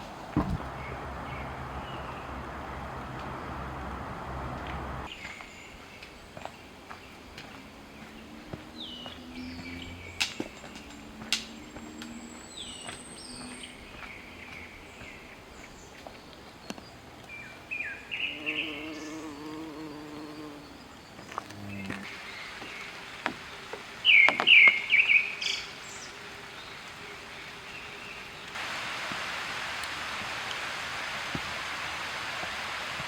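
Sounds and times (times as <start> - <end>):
forest birds chirping: 0.0 - 28.8
flying insect buzzing: 18.2 - 22.1.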